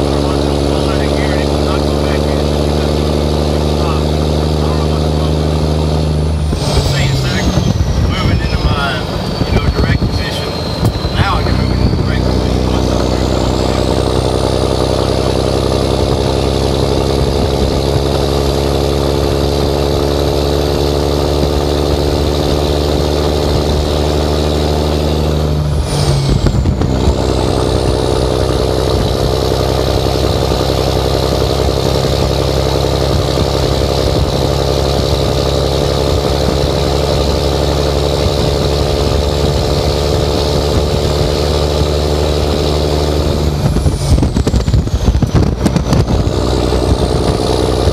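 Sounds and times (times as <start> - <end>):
diesel truck engine revving: 0.0 - 47.9
turbo whistle: 6.8 - 13.9.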